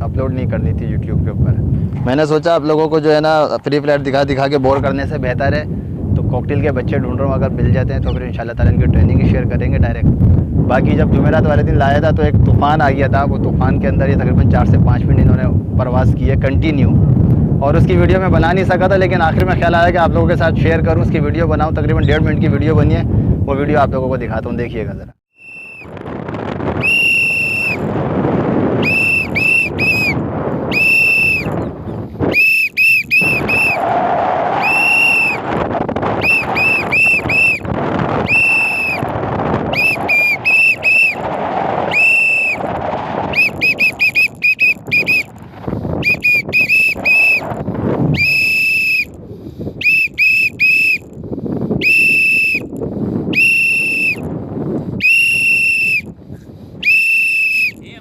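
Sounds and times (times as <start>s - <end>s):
high-pitched whistle toots: 25.4s - 25.9s, 26.8s - 27.8s, 28.8s - 31.7s, 32.3s - 33.8s, 34.6s - 35.4s, 36.2s - 37.6s, 38.2s - 39.0s, 39.7s - 41.2s, 41.9s - 42.6s, 43.3s - 45.3s, 46.0s - 47.5s, 48.1s - 49.2s, 49.8s - 51.1s, 51.8s - 52.7s, 53.3s - 54.3s, 55.0s - 56.1s, 56.8s - 57.8s.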